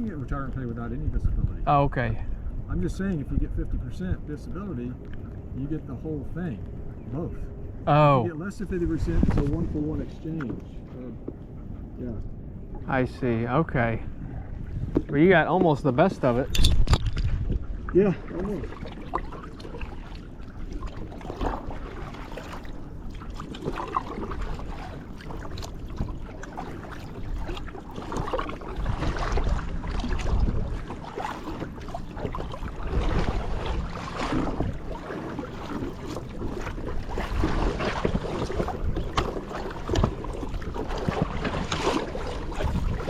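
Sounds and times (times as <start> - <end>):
wind buffeting microphone: 0.0 - 43.0
kayak paddles splashing water: 17.2 - 43.0.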